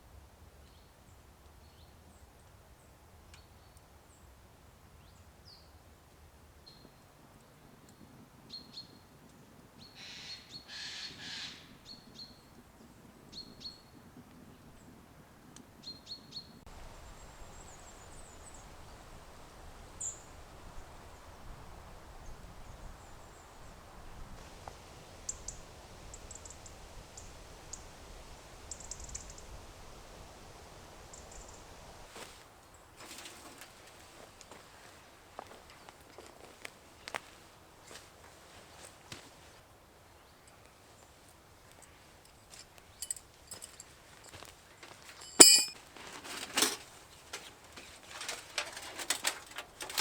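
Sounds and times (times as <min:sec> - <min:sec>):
faint steady hiss: 0:16.6 - 0:50.0.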